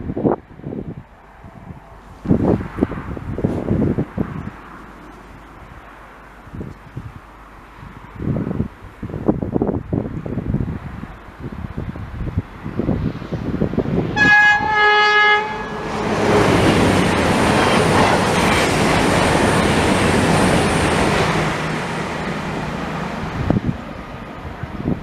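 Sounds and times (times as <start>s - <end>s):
train wheels rushing on rails: 10.4s - 25.0s
two-tone train horn: 14.2s - 16.5s.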